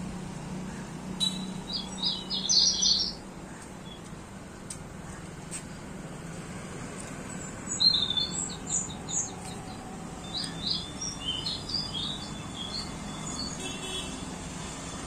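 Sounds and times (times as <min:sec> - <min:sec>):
birds chirping and singing: 0:00.7 - 0:04.1, 0:07.3 - 0:13.8.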